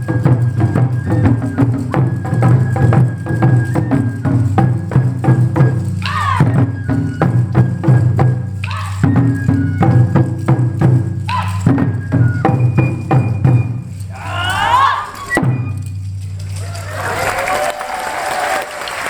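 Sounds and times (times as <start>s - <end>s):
drums in quick rhythm: 0.0s - 17.2s
wooden clappers clacking: 0.0s - 18.0s
people shouting: 6.0s - 6.6s, 8.6s - 9.0s, 11.3s - 11.7s, 14.1s - 15.4s.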